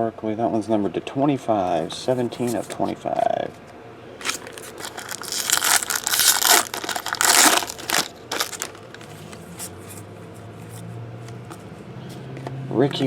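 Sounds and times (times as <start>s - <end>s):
plastic wrapper crinkling: 4.2s - 9.4s.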